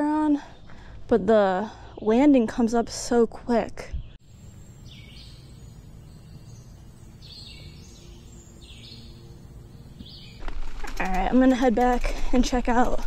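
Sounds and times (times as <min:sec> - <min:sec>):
bird calling: 0:04.3 - 0:11.1.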